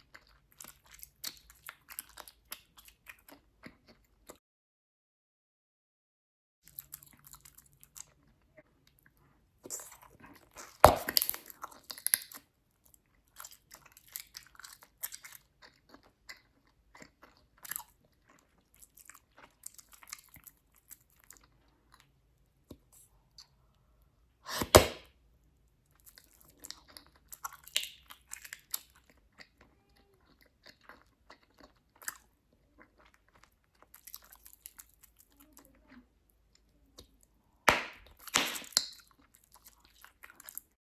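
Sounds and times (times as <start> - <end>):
bubblegum bubbles popping: 10.8 - 11.4.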